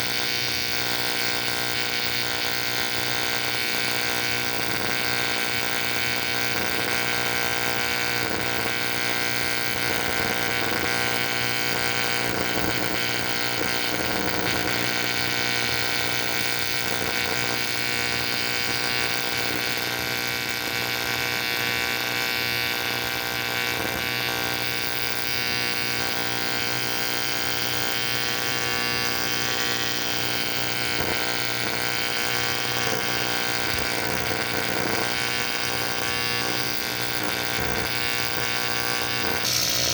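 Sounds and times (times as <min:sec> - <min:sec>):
welding arc buzzing: 0:00.0 - 0:39.9.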